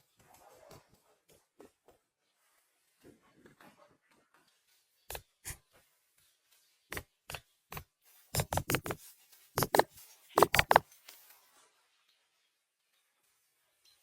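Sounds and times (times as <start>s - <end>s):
sharp knocks and taps: 8.4s - 9.0s, 9.6s - 10.8s.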